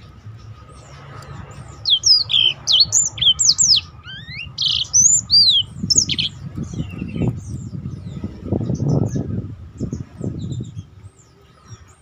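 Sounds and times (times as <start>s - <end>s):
canary singing whistled notes: 0.5s - 9.3s.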